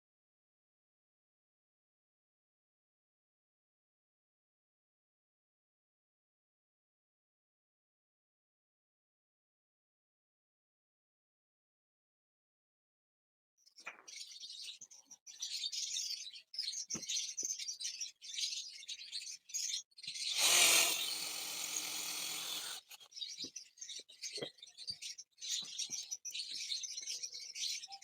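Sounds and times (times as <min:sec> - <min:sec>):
small birds chirping: 0:13.6 - 0:28.0
loud rasping rubbing noise: 0:20.4 - 0:23.0.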